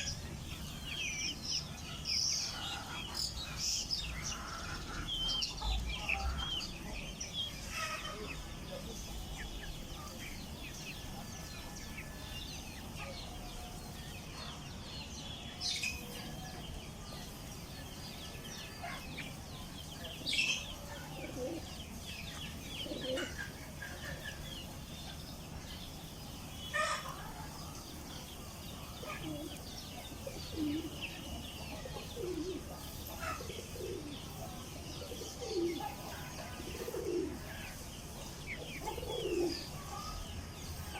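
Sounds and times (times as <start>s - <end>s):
chicks peeping: 0.0s - 40.9s
hen clucking: 1.9s - 10.2s, 22.3s - 24.8s.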